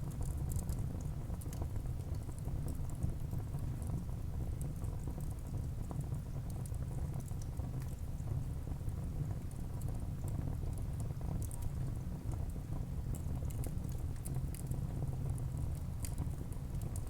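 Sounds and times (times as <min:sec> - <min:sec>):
wood fire burning: 0:13.1 - 0:17.0.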